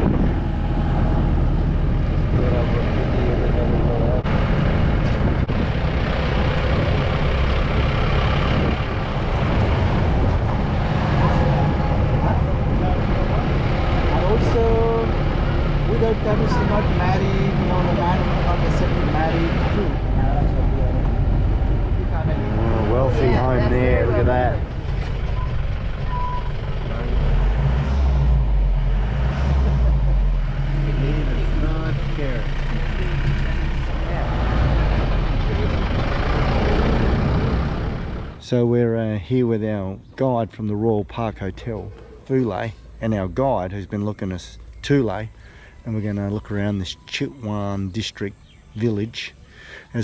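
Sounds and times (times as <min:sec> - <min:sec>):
pickup engine and road noise: 0:00.0 - 0:50.0.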